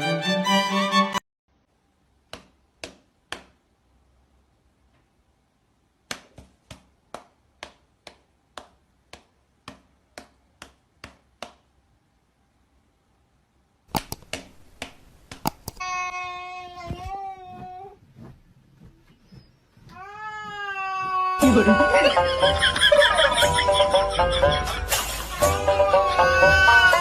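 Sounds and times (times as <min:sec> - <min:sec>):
sharp taps or knocks: 0:13.9 - 0:15.8.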